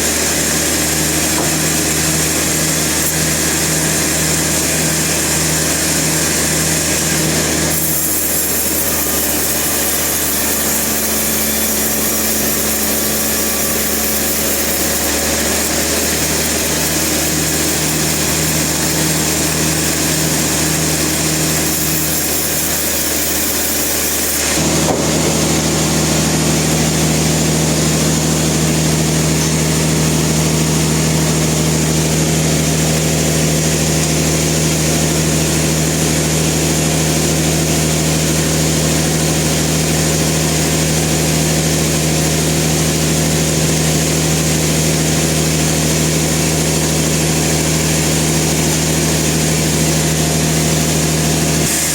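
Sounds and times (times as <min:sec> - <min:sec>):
sawmill machinery running: 0:00.0 - 0:51.9
engine hum: 0:24.5 - 0:41.3.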